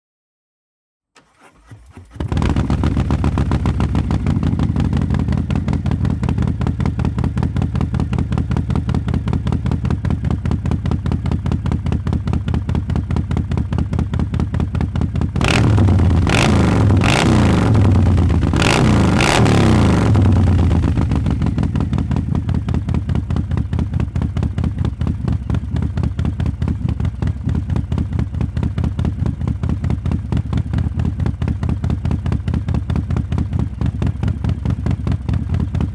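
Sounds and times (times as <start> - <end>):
motorcycle throttle blips: 1.2 - 23.4
motorcycle engine idling: 2.2 - 35.9.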